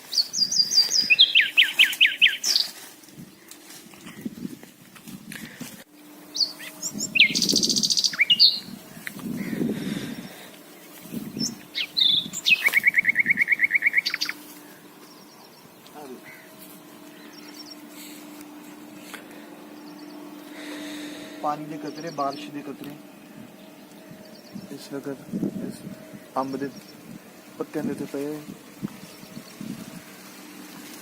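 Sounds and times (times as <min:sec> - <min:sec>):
rapid pulsed bird trill: 0:00.0 - 0:03.5, 0:05.9 - 0:18.4, 0:19.4 - 0:27.6
birds calling: 0:00.0 - 0:31.0.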